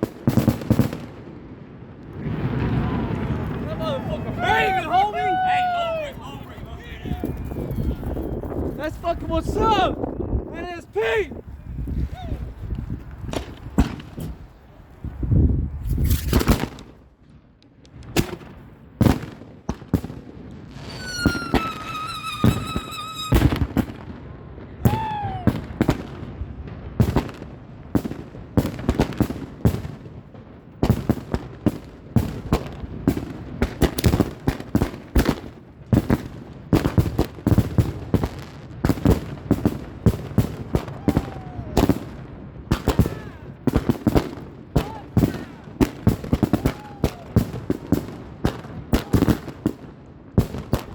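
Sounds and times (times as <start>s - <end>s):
fireworks bangs and crackles: 0.0s - 50.9s
firework whistles: 20.7s - 23.7s.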